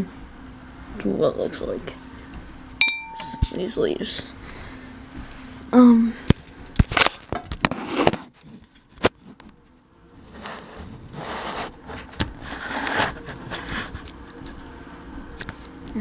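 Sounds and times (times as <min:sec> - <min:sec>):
rustling and scraping: 0:10.2 - 0:14.7.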